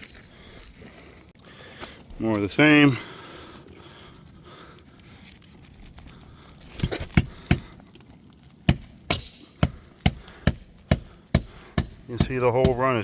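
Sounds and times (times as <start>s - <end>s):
footsteps on shingle roof: 4.2s - 13.0s.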